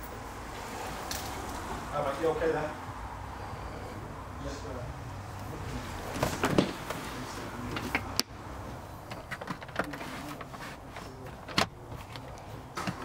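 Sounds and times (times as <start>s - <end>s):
car door clicks and knocks: 9.0s - 10.0s, 11.3s - 13.0s.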